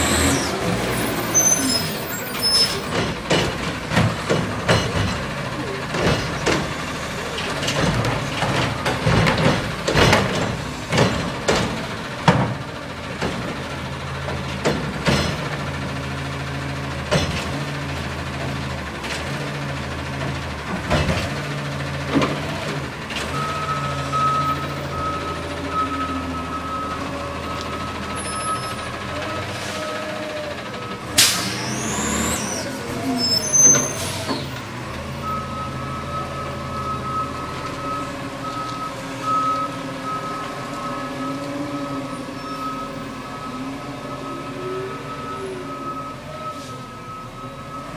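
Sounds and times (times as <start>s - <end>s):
garbage truck running: 0.0s - 47.9s
bangs and clanks: 2.7s - 13.5s
reversing beeper beeps: 23.3s - 30.0s, 35.1s - 47.9s
air brake hiss: 31.2s - 32.8s.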